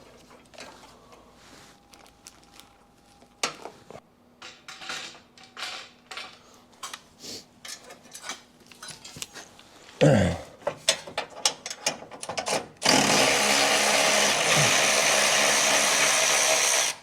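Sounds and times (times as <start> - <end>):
faint steady hum: 0.0 - 11.1
metal tools clinking and knocking: 4.4 - 7.0, 7.6 - 9.4.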